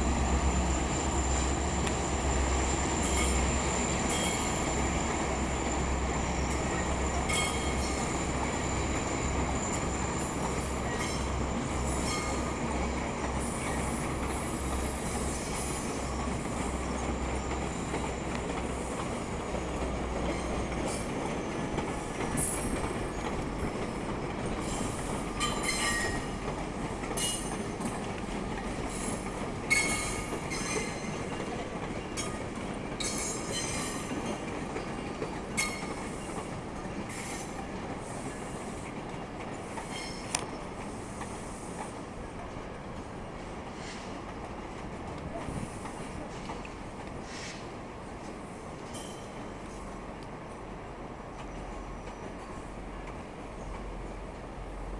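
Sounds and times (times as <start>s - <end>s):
train rumbling: 0.0s - 54.9s
wheels clicking over rail joints: 16.3s - 42.0s
metallic wheel squeal: 24.6s - 26.3s, 29.7s - 31.2s.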